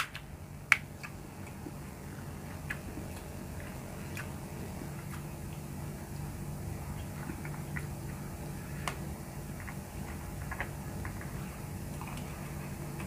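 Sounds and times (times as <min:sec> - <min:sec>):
steady low hum: 0:00.0 - 0:13.0
person chewing: 0:00.7 - 0:06.2, 0:08.6 - 0:13.0.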